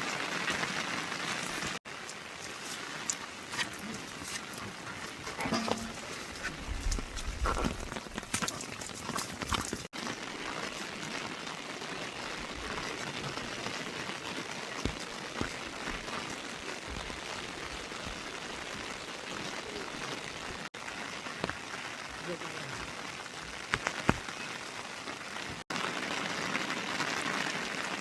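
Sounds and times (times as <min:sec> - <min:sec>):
steady rain falling: 0:00.0 - 0:28.0
water drips: 0:01.8 - 0:11.3.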